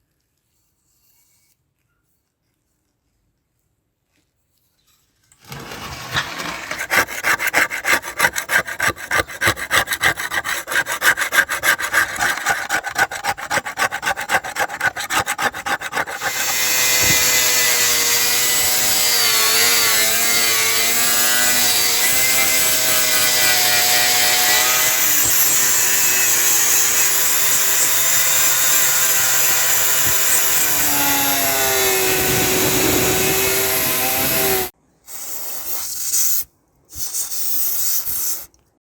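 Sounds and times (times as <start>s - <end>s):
abrasive scrubbing on metal: 6.1s - 25.2s
power tool running: 6.2s - 34.7s.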